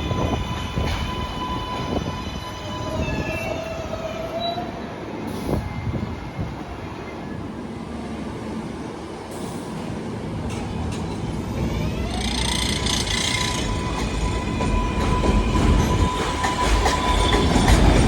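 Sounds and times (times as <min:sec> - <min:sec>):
subway train rumbling: 0:00.0 - 0:18.0
electric motors whining: 0:11.8 - 0:14.0.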